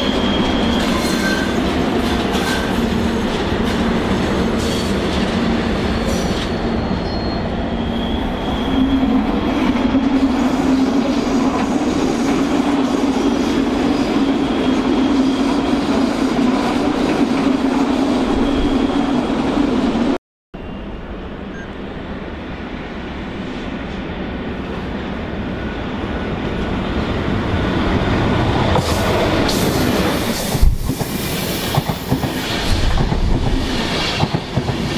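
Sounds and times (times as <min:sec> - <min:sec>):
high wheel squeals: 0:00.0 - 0:01.7, 0:06.0 - 0:09.5
train rolling noise: 0:00.0 - 0:34.9.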